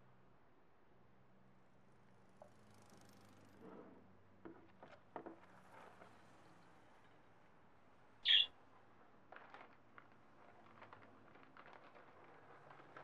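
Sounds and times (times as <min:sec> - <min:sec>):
bird chirp: 0:08.2 - 0:08.5
rustles: 0:08.3 - 0:13.0.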